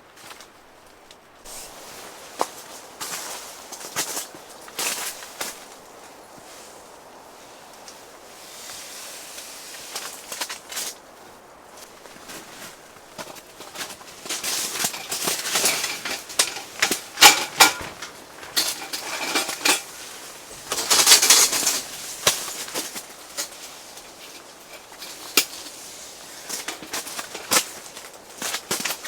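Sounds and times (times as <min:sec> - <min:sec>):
rustling: 0:08.6 - 0:29.0
sharp clicks and knocks: 0:14.8 - 0:19.9.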